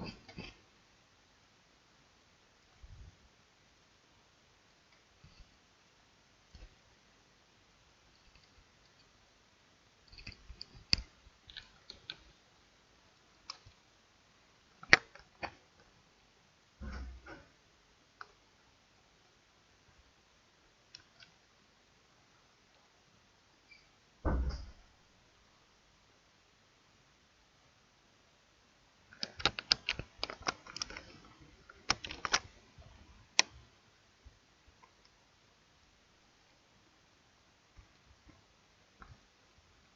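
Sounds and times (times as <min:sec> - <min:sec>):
computer mouse and keyboard clicks: 0:10.0 - 0:12.3, 0:13.4 - 0:13.8, 0:14.8 - 0:15.6, 0:20.9 - 0:21.4, 0:29.1 - 0:32.5.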